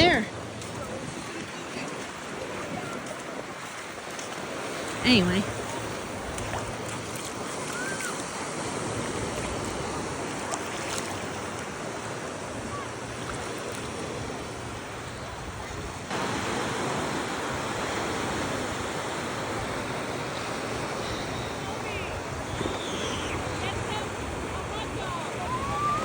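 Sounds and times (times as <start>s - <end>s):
ocean waves washing onto beach: 0.0s - 26.0s
wind: 0.0s - 26.0s.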